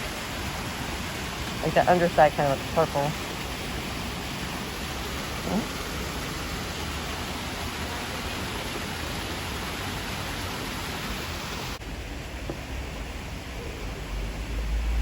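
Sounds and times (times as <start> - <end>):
waterfall rushing hiss: 0.0 - 15.0.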